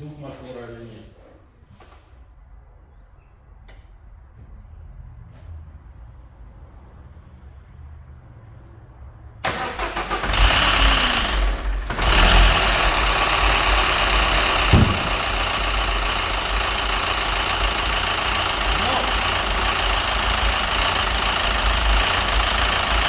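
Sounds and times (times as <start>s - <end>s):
car engine starting: 9.4s - 23.0s
engine knocking: 9.6s - 23.0s.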